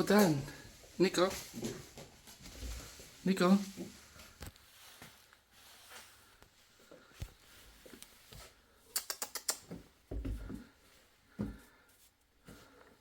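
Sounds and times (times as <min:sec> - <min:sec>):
kitten claws clicking on stairs: 0:08.9 - 0:09.9.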